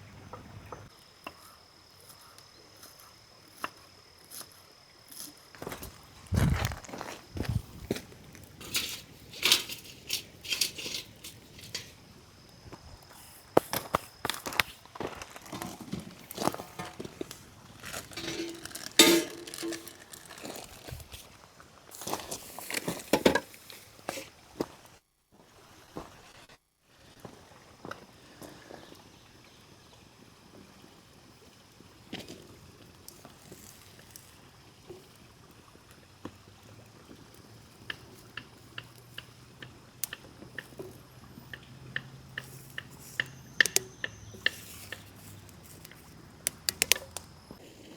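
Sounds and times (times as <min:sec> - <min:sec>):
handling clicks and knocks: 0:16.4 - 0:21.1, 0:42.0 - 0:45.1.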